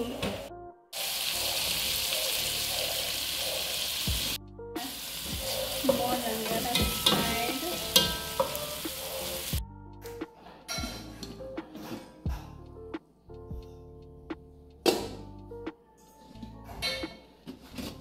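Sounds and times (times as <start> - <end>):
food sizzling in a pot: 0.4 - 9.6
metal spoon knocking a pot: 5.9 - 8.8.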